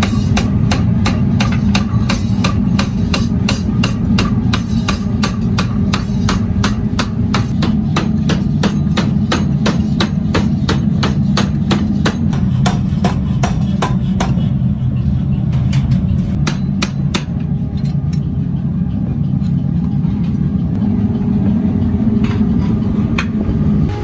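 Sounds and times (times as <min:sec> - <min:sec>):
low machine hum: 0:00.0 - 0:12.8
hammer striking metal: 0:00.0 - 0:14.4, 0:16.3 - 0:17.4.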